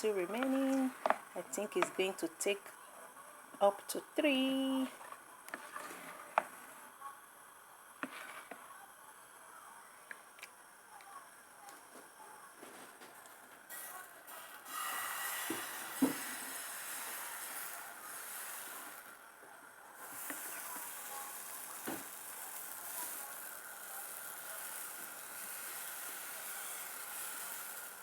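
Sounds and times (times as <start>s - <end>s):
batter sizzling in oil: 13.6s - 28.0s.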